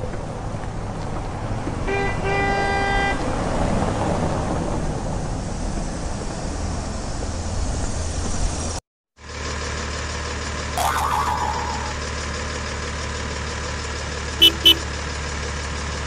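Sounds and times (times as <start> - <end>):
horn tooting: 14.4 - 14.9.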